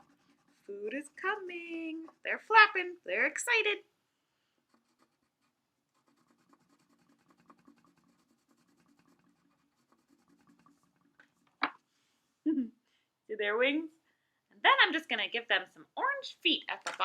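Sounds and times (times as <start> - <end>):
crayon rubbing on paper: 0.0 - 1.4, 4.7 - 11.1.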